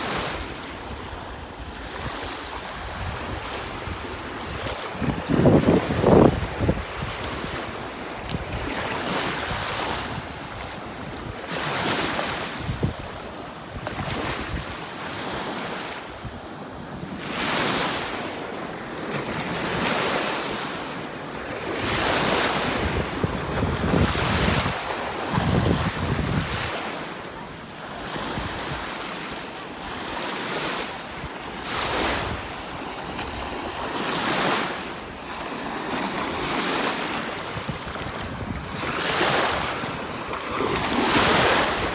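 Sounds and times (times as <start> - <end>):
waves breaking on beach: 0.0 - 41.9
wind buffeting microphone: 2.0 - 8.8, 21.8 - 26.8, 37.5 - 41.9.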